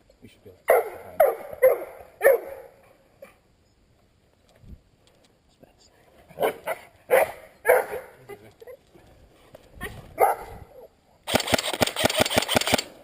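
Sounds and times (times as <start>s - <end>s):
airsoft gun shots: 11.3s - 13.0s.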